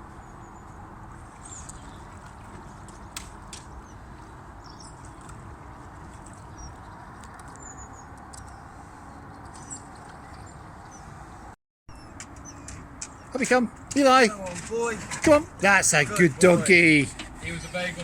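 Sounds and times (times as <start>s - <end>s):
small clicks and splashes: 1.3s - 3.8s, 4.8s - 8.6s.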